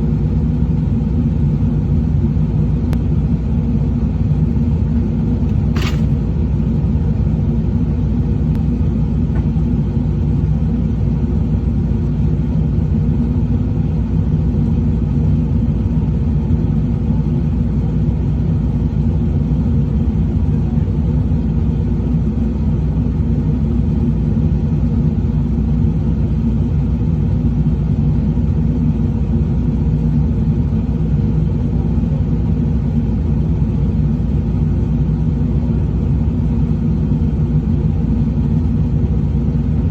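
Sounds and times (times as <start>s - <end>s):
truck engine running: 2.2s - 12.3s
sharp click: 5.5s - 6.2s.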